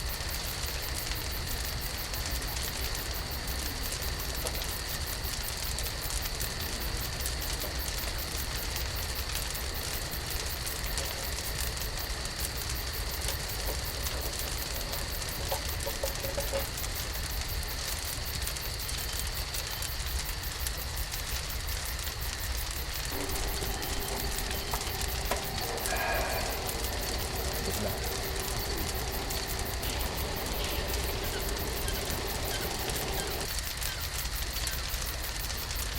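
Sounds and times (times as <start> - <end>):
fire crackling and sizzling: 0.0 - 35.9
faint high whine: 22.8 - 33.6
low rumble: 23.0 - 33.5.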